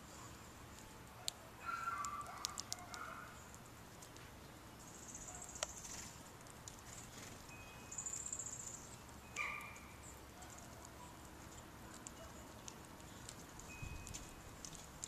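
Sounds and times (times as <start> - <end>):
small birds calling: 0.0 - 15.0.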